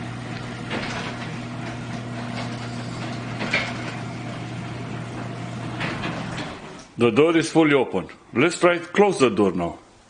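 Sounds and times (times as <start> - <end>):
garage door rattling: 0.0 - 7.0
garage door opener motor humming: 0.0 - 7.1.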